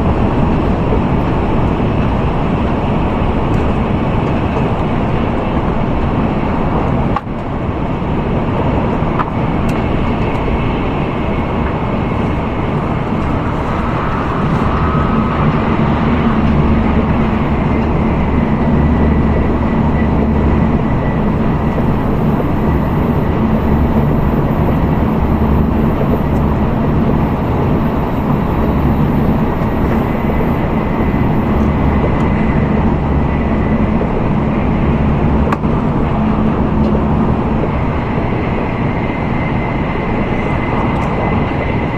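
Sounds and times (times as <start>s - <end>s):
train cabin rumble and rush: 0.0s - 41.9s.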